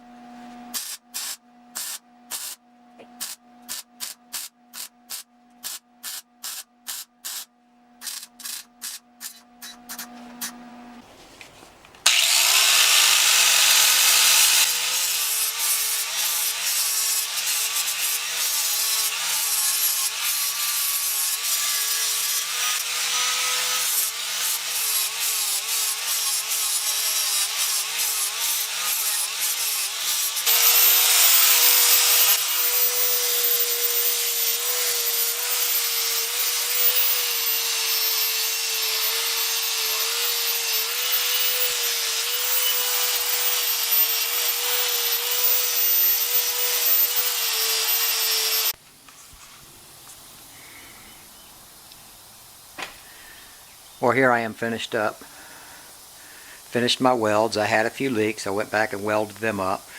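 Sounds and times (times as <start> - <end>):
angle grinder grinding metal: 3.2 - 10.6, 12.1 - 48.8.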